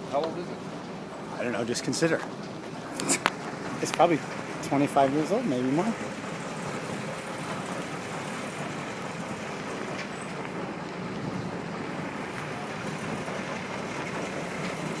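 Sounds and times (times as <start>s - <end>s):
motorboat engine hum: 0.0s - 15.0s
water wash: 0.0s - 15.0s.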